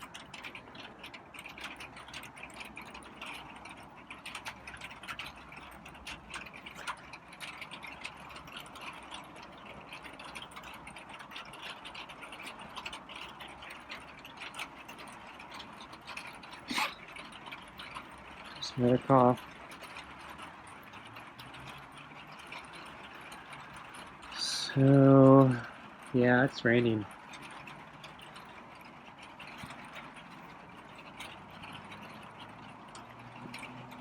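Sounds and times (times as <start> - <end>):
light rain pattering: 0.0 - 34.0
cat coughing: 16.7 - 17.0.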